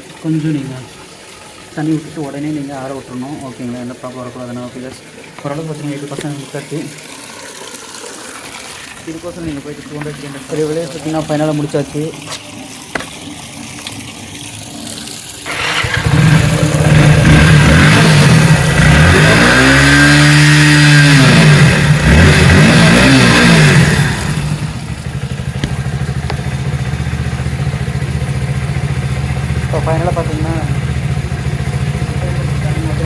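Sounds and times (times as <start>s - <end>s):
motorcycle engine revving and idling: 15.5s - 33.0s.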